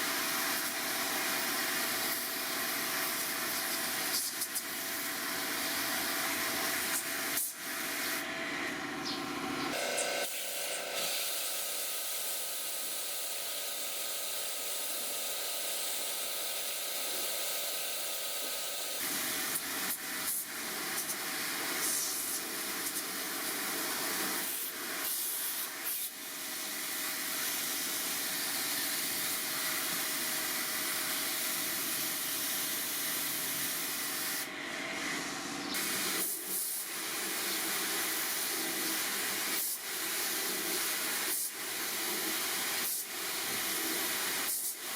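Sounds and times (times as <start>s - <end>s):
motor hum: 8.2s - 19.0s
hissing spray of cleaning jet: 9.7s - 34.5s, 35.8s - 44.9s.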